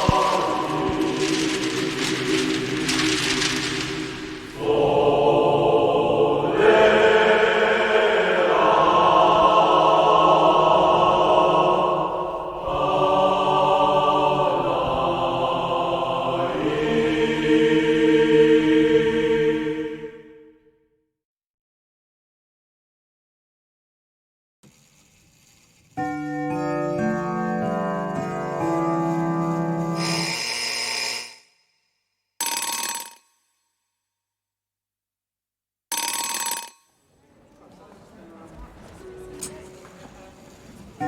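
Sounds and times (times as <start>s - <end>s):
voices singing sustained chords: 0.0s - 20.6s.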